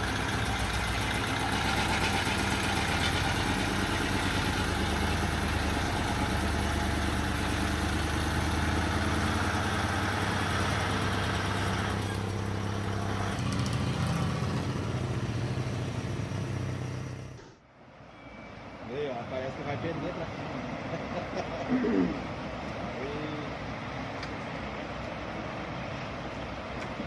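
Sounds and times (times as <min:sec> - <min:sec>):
truck engine running: 0:00.0 - 0:17.6.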